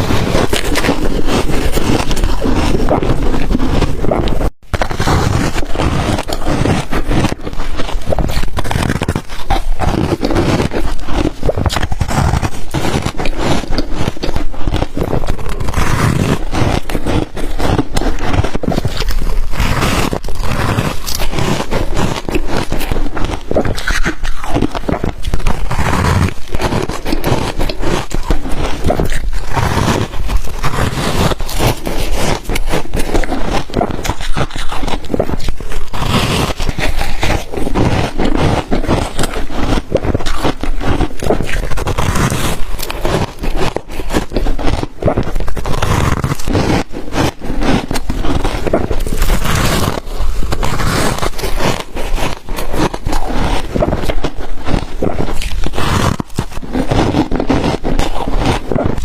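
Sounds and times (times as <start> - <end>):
ice being bitten and chewed: 0.0 - 59.0.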